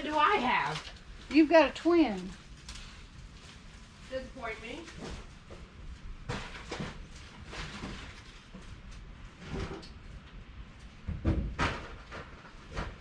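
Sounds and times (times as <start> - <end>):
household items knocking and rustling: 4.7 - 10.0, 11.0 - 13.0.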